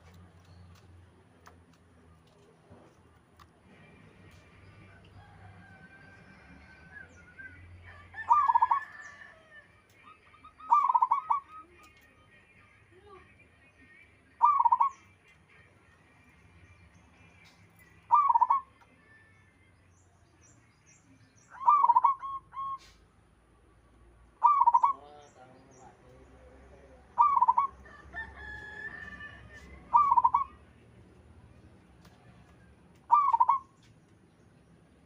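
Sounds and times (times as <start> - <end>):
dove cooing: 8.2 - 9.2, 10.4 - 11.8, 14.4 - 15.0, 18.1 - 18.7, 21.6 - 23.0, 24.4 - 25.1, 27.2 - 27.8, 29.6 - 30.6, 33.1 - 33.7.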